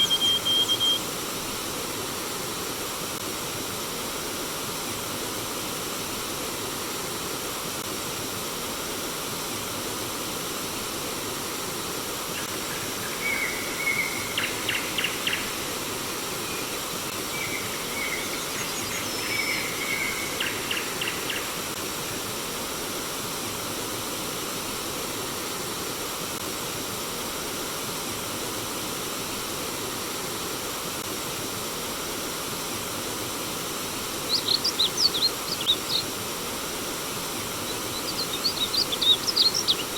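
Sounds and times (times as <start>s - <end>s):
bird calling: 0.0s - 1.0s, 34.2s - 36.1s, 37.6s - 39.9s
stream water flowing: 0.0s - 39.9s.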